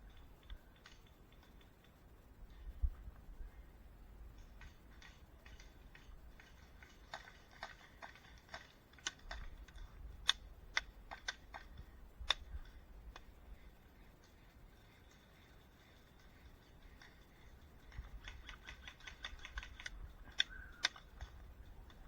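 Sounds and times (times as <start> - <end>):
sharp clicks and snaps: 0.0 - 2.6, 4.4 - 13.4, 16.2 - 22.0
faint low rumble: 0.0 - 22.0.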